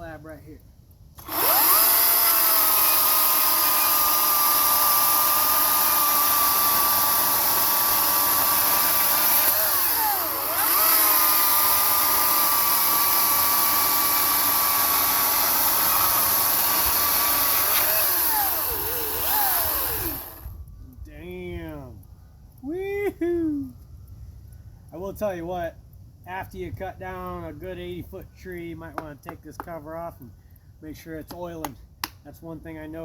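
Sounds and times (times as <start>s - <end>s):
electric chainsaw cutting wood: 1.2s - 20.6s.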